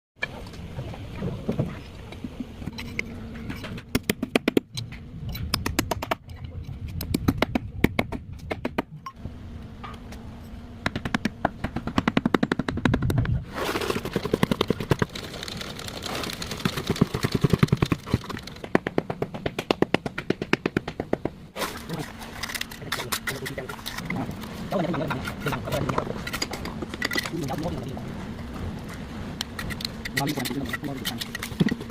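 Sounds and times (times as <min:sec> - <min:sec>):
mechanical hammering bursts: 0:10.8 - 0:13.1, 0:13.9 - 0:21.5.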